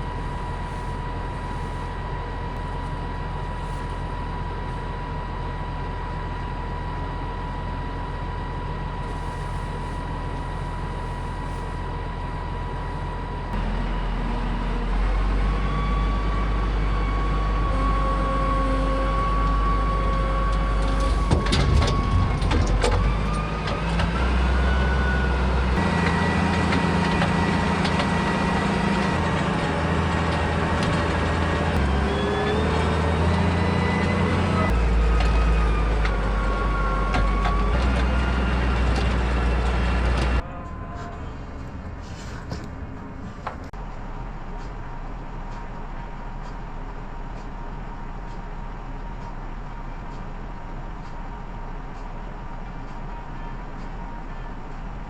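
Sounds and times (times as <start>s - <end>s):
thin whine: 0.0s - 34.9s
vehicle engine running: 0.0s - 40.4s.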